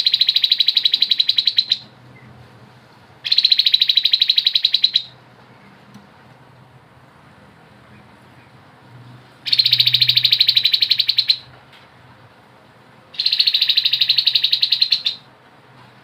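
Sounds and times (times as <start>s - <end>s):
bird rattling trills: 0.0s - 1.8s, 3.3s - 5.1s, 9.5s - 11.5s, 13.2s - 15.2s.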